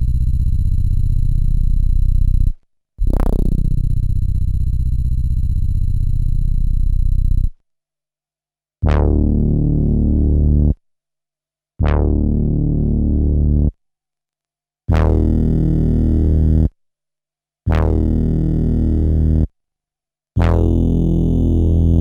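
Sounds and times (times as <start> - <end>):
low synthesizer sample note: 0.0 - 7.5.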